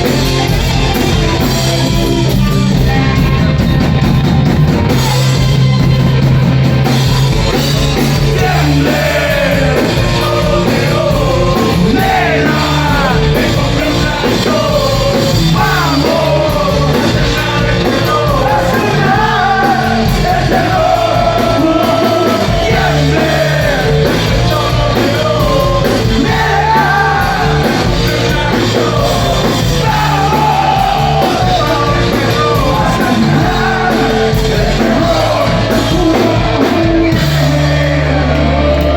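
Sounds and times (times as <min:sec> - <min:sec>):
rock band playing: 0:00.0 - 0:38.9
person singing: 0:08.3 - 0:38.9.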